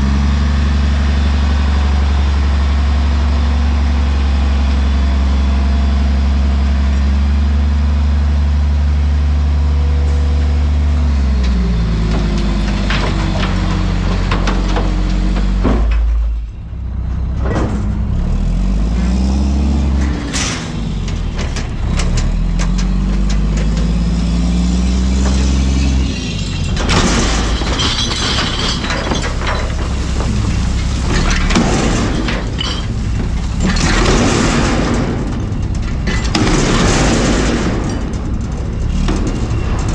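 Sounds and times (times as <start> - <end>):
diesel truck engine revving: 0.0 - 39.9
refuse crashing and clattering: 10.6 - 39.9.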